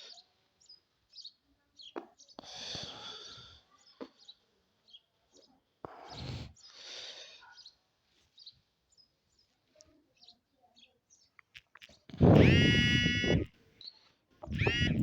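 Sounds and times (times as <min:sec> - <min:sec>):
birds chirping faintly: 0:00.0 - 0:15.0
loud drawn-out bird call: 0:14.4 - 0:15.0.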